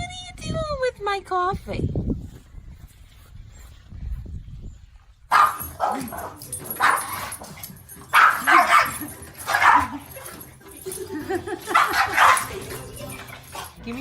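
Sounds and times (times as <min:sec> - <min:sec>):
dog barking and yipping: 0:05.3 - 0:13.8.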